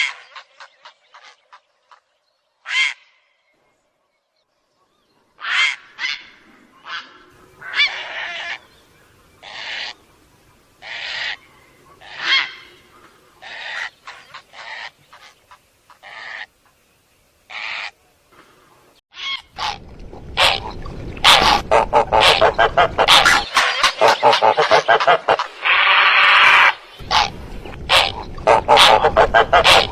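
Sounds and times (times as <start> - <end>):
bird calls: 19.2 - 29.9
low rumble: 19.5 - 23.5, 27.0 - 29.9.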